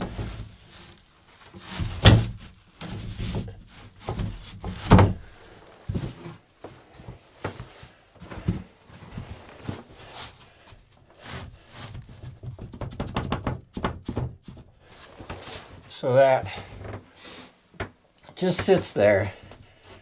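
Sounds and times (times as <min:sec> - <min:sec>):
wooden panels knocking: 0:12.2 - 0:14.6.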